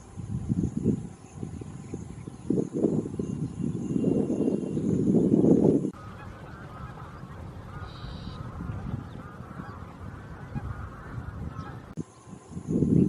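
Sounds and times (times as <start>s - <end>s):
geese honking: 5.9s - 12.0s.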